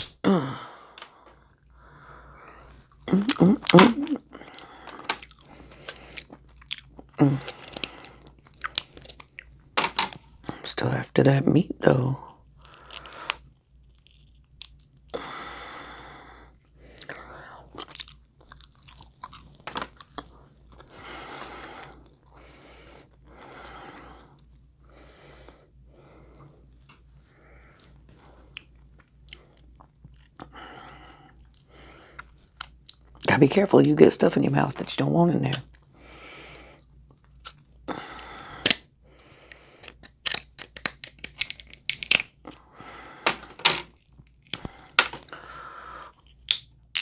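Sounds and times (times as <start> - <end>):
person breathing heavily: 0.2 - 6.4, 7.2 - 8.4, 12.3 - 13.5, 15.1 - 17.8, 20.3 - 28.6, 30.4 - 32.4, 35.9 - 36.9, 37.8 - 40.0, 42.5 - 43.9, 44.5 - 46.4
crab shells cracking: 3.2 - 9.6, 38.2 - 38.8, 39.8 - 42.6, 46.2 - 47.0
shell tearing apart: 39.8 - 42.5.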